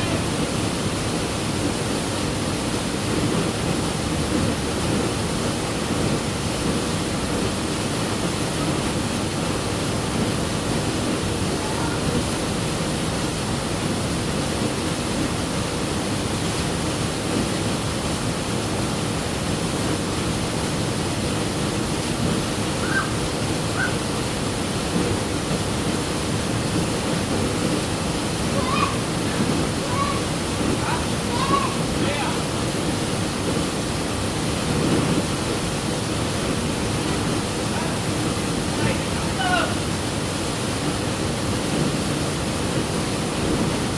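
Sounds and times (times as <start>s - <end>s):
water rushing: 0.0s - 43.9s.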